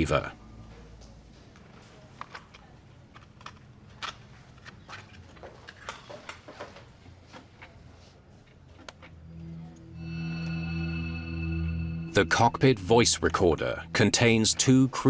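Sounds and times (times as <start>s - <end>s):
low steady hum: 8.9s - 15.0s.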